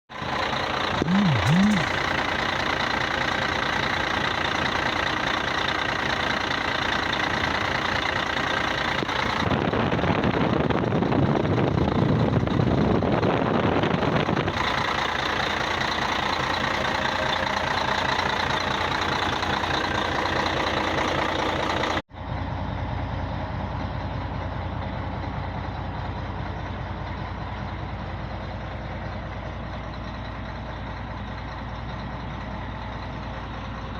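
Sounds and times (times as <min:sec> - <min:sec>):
diesel truck engine idling: 0:23.2 - 0:33.9.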